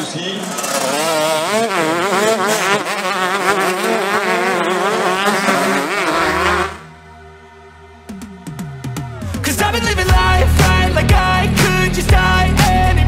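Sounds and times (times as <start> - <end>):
motocross bike engines buzzing: 0.0 - 7.0
steady tones: 0.0 - 12.4
low drone: 4.5 - 12.5.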